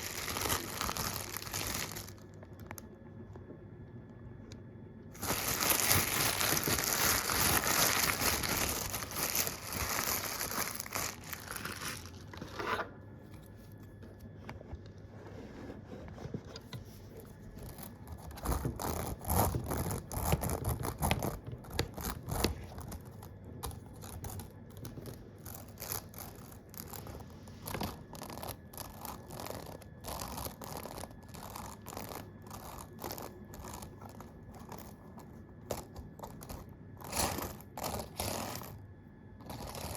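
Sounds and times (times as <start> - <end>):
loud crinkling rustling: 0.0 - 2.4, 5.2 - 12.5.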